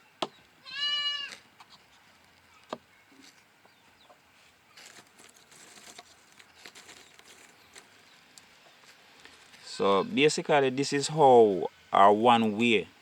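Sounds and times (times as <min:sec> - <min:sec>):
goat kid bleating: 0:00.6 - 0:01.4, 0:09.6 - 0:10.2
light rustling: 0:04.4 - 0:09.7.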